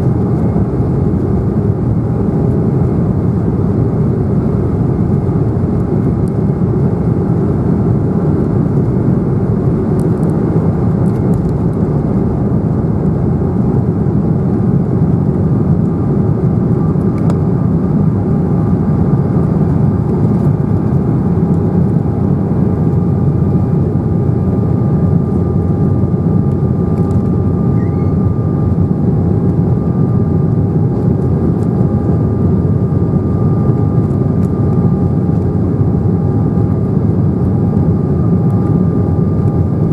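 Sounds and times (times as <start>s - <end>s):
jet engine cabin rumble: 0.0s - 39.9s
faint steady whining tones: 22.9s - 39.9s.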